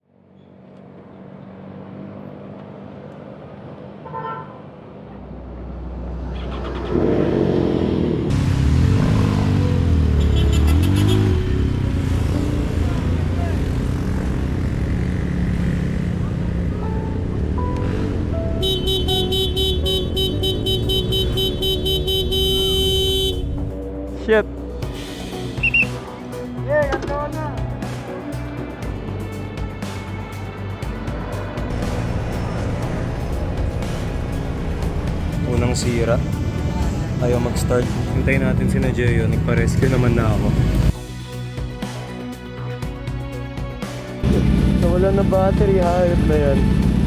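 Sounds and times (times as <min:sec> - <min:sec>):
road traffic engines: 0:00.1 - 0:47.0
car horn toot: 0:10.2 - 0:11.4, 0:18.6 - 0:23.8
deep engine rumble: 0:29.2 - 0:41.0.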